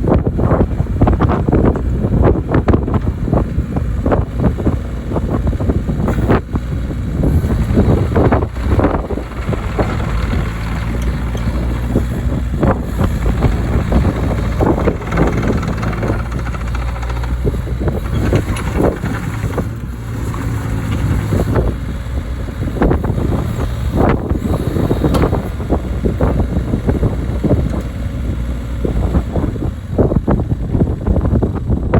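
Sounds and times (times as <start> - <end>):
excavator diesel engine running: 0.0 - 31.9
machine knocks and clanks: 7.3 - 21.5.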